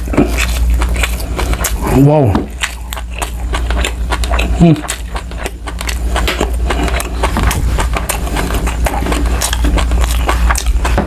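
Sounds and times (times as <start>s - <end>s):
low steady rumble: 0.0s - 11.0s
wet chewing clicks and smacks: 0.0s - 11.0s.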